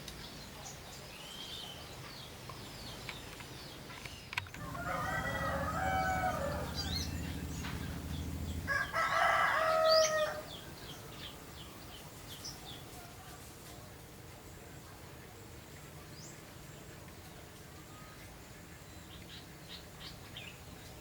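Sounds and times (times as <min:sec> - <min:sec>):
small birds chirping: 0:00.0 - 0:13.5
rooster crowing: 0:04.6 - 0:10.6.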